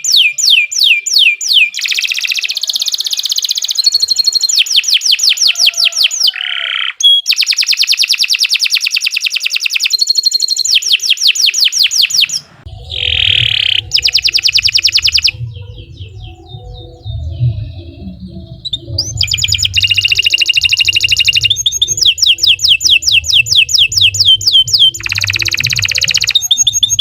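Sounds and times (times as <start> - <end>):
canary singing trills: 0.0 - 27.0
low rumble: 12.4 - 27.0.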